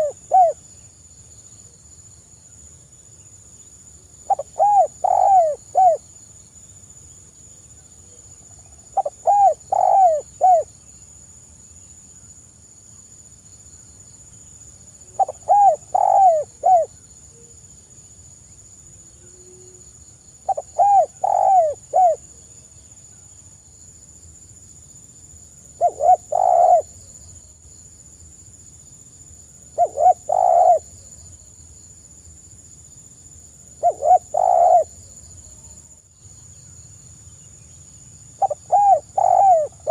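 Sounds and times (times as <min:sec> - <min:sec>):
dove cooing: 0:00.0 - 0:00.6, 0:04.3 - 0:06.0, 0:09.0 - 0:10.7, 0:15.1 - 0:16.9, 0:20.5 - 0:22.2, 0:25.8 - 0:26.9, 0:29.8 - 0:31.0, 0:33.8 - 0:35.0, 0:38.4 - 0:39.9.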